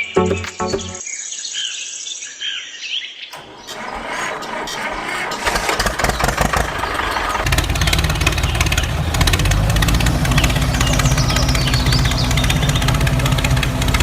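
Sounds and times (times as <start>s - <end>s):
small engine starting and running: 3.4s - 14.0s.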